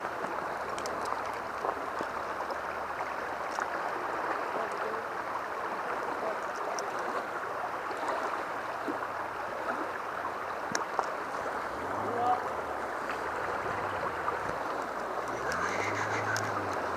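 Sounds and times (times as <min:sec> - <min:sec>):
river water rushing: 0:00.0 - 0:16.9
faint ticks: 0:00.6 - 0:02.6, 0:06.3 - 0:07.0, 0:10.6 - 0:11.2, 0:14.4 - 0:16.9.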